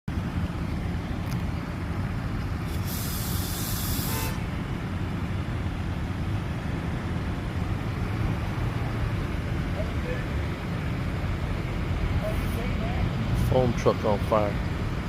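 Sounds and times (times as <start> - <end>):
burst of hissing: 2.7 - 4.4.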